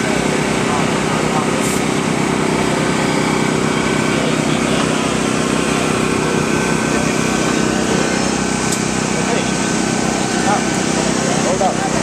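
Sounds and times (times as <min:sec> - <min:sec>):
steady engine drone: 0:00.0 - 0:12.0.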